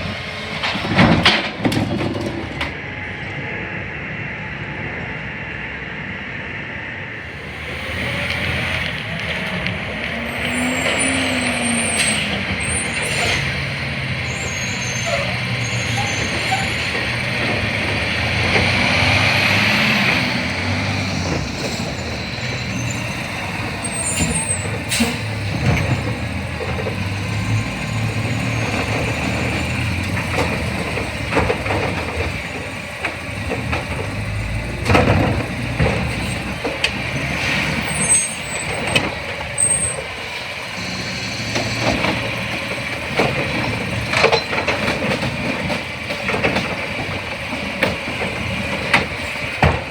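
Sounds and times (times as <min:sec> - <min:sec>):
garbage truck running: 0:00.0 - 0:03.6, 0:07.1 - 0:49.9
air brakes hissing: 0:10.5 - 0:17.3, 0:20.7 - 0:26.1.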